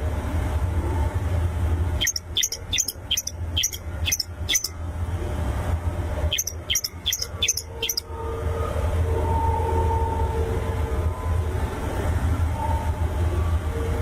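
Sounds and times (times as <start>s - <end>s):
shrike calling sharp notes: 2.0s - 4.7s, 6.3s - 8.0s.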